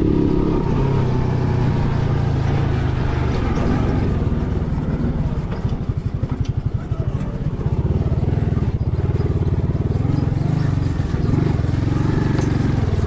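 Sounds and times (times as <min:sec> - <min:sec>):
vehicle engine chugging: 0:00.0 - 0:13.0.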